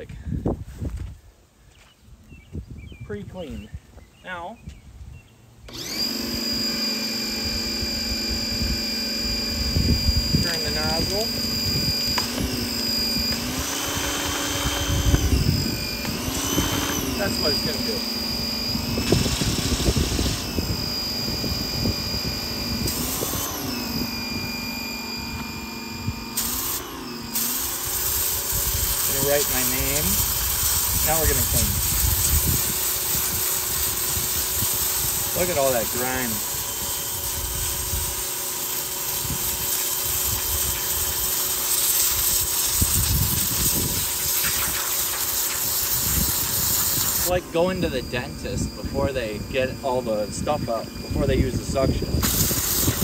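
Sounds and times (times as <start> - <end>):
pressure washer motor whine: 5.6 - 53.0
pump humming: 5.7 - 53.0
water jet hissing: 26.3 - 53.0.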